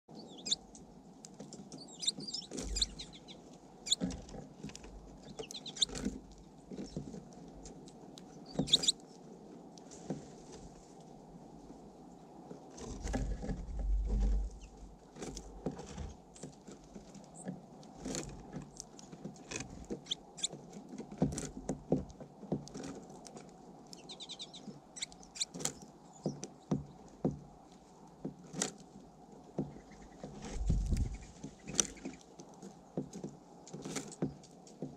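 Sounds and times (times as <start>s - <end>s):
birds pecking at seed: 0.1s - 34.9s
short high bird chirps: 8.6s - 8.9s.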